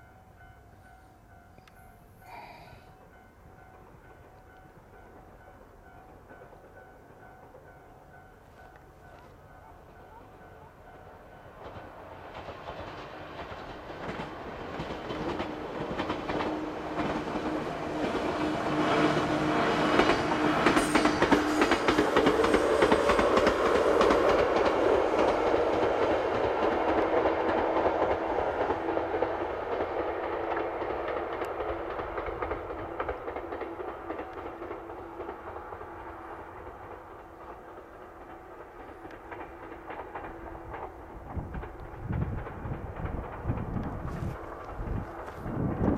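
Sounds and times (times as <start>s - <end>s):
electric train running: 0.0s - 45.9s
train wheels clacking over rail joints: 11.0s - 45.9s.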